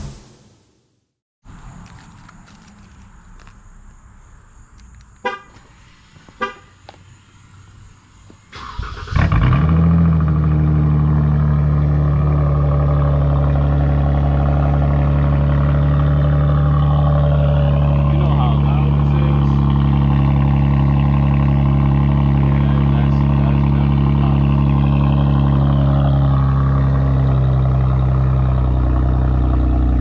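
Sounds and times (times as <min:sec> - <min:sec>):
car engine cranking and starting: 0:01.7 - 0:04.0, 0:08.4 - 0:30.0
car horn chirps: 0:05.2 - 0:05.6, 0:06.3 - 0:06.9
loud deep car engine idle: 0:08.6 - 0:30.0.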